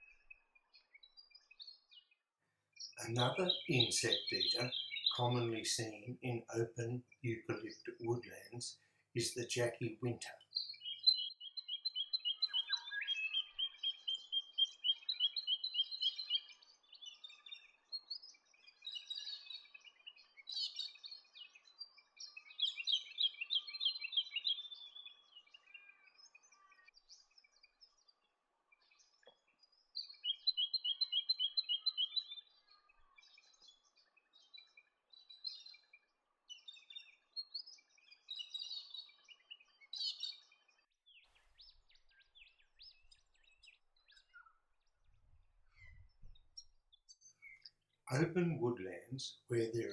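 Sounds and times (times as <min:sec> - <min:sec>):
soft bird chirps: 0:00.0 - 0:49.9
bird singing repeated high notes: 0:03.0 - 0:16.3.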